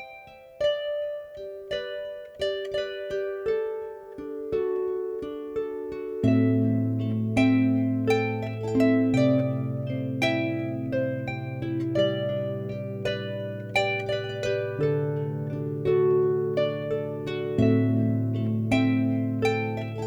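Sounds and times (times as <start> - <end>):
harp playing: 0.0 - 20.0.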